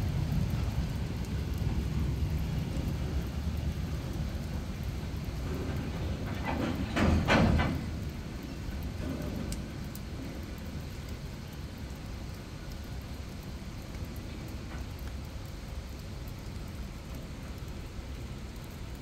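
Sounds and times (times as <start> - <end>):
train wheel clatter: 0.0 - 10.8
freight train wagons rumbling: 0.0 - 18.9
steady rain: 0.0 - 19.0.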